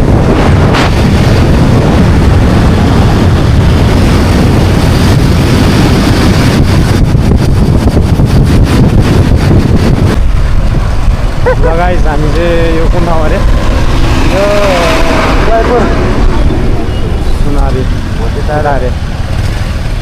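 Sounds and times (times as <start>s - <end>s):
motorcycle engine: 0.0s - 20.0s
road noise: 0.0s - 20.0s
wind rushing over microphone: 0.0s - 20.0s.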